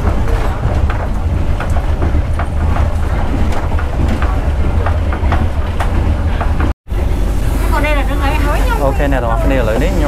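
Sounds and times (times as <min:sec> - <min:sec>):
wheels clicking and knocking on track: 0:00.0 - 0:07.4
heavy train rumble: 0:00.0 - 0:10.0.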